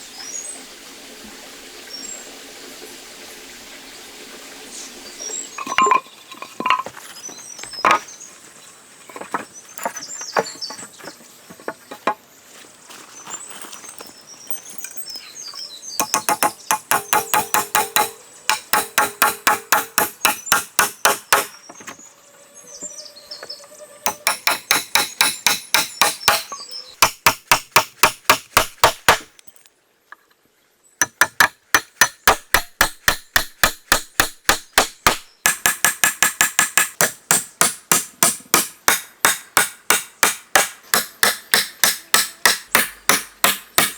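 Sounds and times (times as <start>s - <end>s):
birds chirping: 4.6s - 27.0s
rapid hammer blows: 16.0s - 21.5s.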